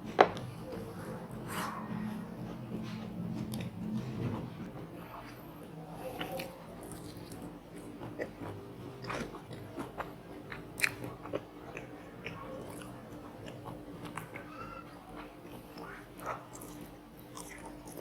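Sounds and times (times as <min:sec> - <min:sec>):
person chewing crunchy food: 0:00.4 - 0:18.0.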